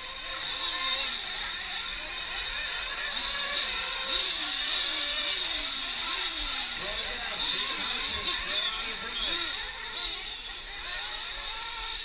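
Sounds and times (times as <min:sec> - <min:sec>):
model truck engines revving: 0:00.0 - 0:12.0
high-pitched whine: 0:06.4 - 0:12.0.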